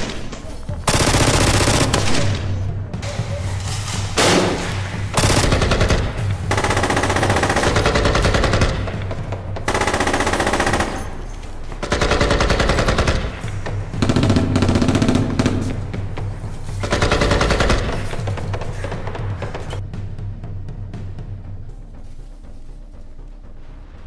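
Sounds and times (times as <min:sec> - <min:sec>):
rapid automatic gunfire: 0:00.9 - 0:02.3, 0:05.2 - 0:11.2, 0:11.8 - 0:15.7, 0:16.8 - 0:18.9.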